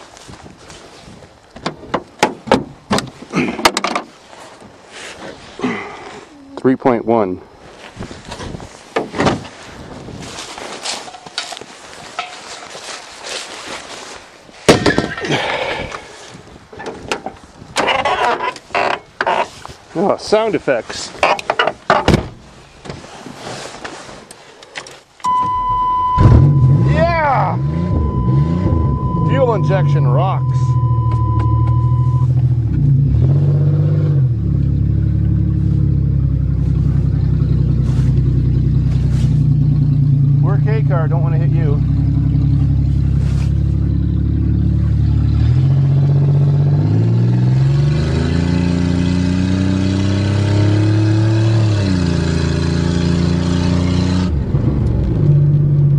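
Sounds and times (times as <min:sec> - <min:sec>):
car engine cranking and starting: 0:25.2 - 0:55.9.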